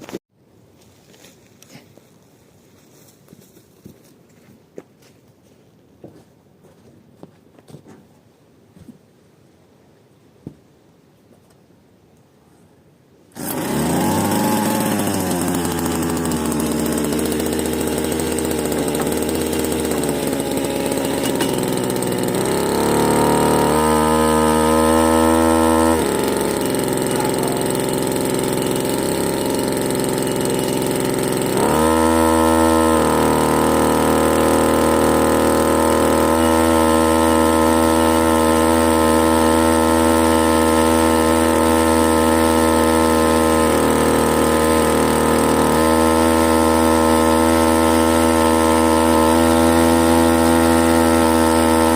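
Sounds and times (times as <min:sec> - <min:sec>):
small engine starting and running: 0:13.3 - 0:51.9.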